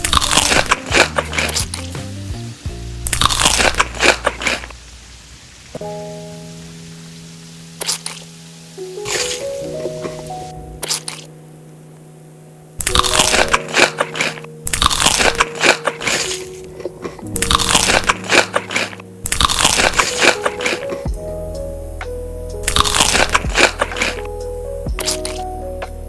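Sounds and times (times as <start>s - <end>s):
crunchy food being chewed: 0.0s - 1.8s, 3.1s - 4.7s, 12.8s - 16.5s, 17.4s - 21.0s, 22.7s - 24.3s
soft background music: 0.0s - 4.5s, 5.8s - 26.0s.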